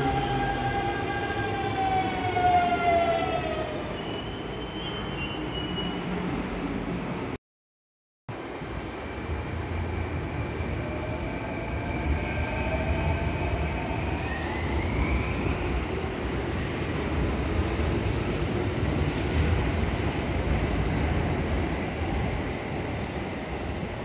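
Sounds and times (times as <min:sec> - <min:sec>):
electric train rumbling past: 0:08.4 - 0:24.0.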